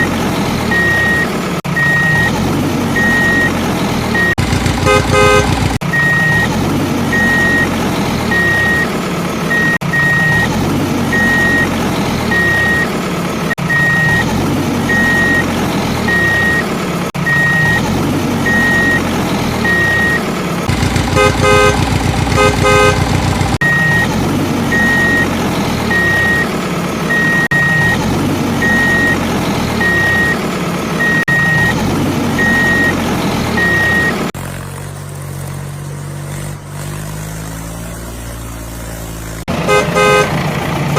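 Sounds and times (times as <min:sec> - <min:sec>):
vehicle engine rumbling: 0:00.0 - 0:40.9
high beep: 0:00.7 - 0:02.3, 0:03.0 - 0:03.6, 0:04.2 - 0:06.5, 0:07.1 - 0:07.7, 0:18.4 - 0:19.0, 0:23.6 - 0:24.1, 0:24.7 - 0:25.3, 0:25.9 - 0:26.5, 0:28.6 - 0:29.2, 0:29.8 - 0:30.4, 0:31.0 - 0:31.8, 0:32.4 - 0:34.2
horn tooting rapidly: 0:04.2 - 0:06.5, 0:19.6 - 0:24.1, 0:39.5 - 0:40.4.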